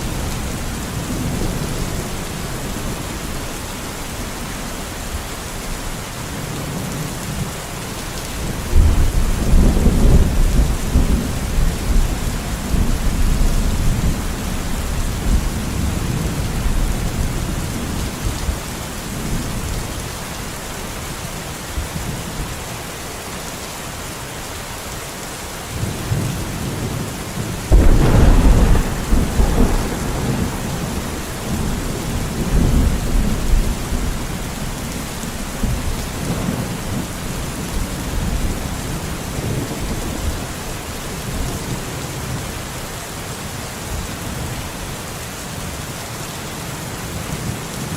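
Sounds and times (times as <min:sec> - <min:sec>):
steady rain: 0:00.0 - 0:47.9
thunder rumbling: 0:08.4 - 0:19.4, 0:25.8 - 0:40.5.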